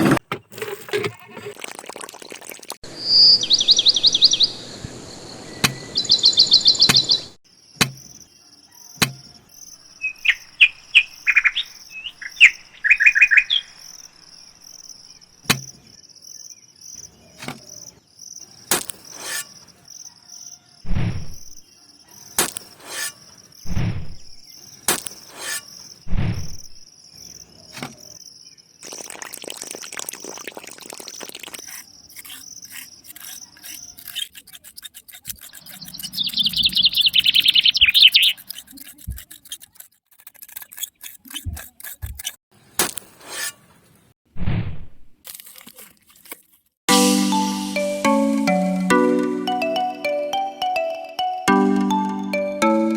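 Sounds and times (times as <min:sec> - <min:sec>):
insect chirping: 0:01.6 - 0:39.8
birds chirping trills: 0:02.9 - 0:17.8, 0:30.2 - 0:39.8.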